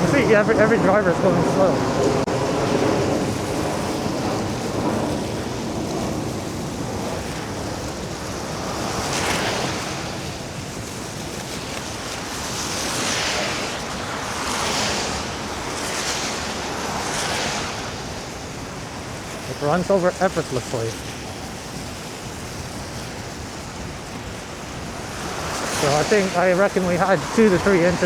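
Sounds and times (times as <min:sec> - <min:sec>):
road noise: 0:00.0 - 0:28.0
wind rushing over microphone: 0:00.0 - 0:28.0
hissing swells: 0:24.6 - 0:28.0.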